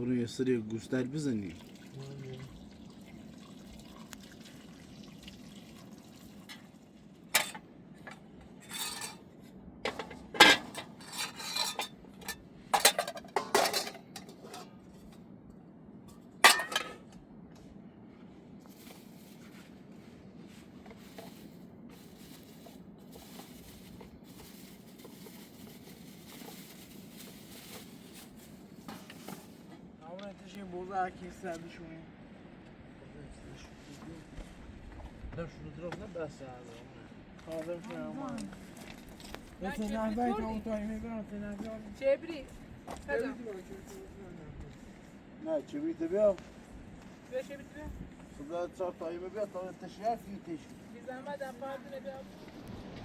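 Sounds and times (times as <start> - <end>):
faint low background hum: 0.0 - 53.0
dishes and cutlery clinking: 9.9 - 14.8, 16.4 - 17.1.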